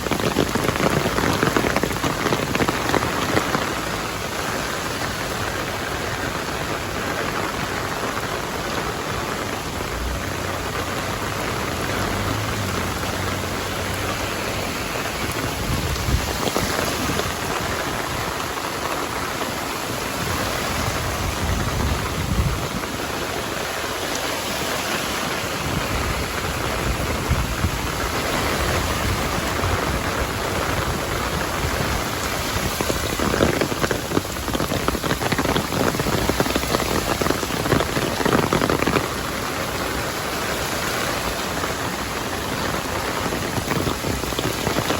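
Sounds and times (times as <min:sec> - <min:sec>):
heavy rain falling: 0:00.0 - 0:44.9
low rumbles: 0:07.8 - 0:18.2.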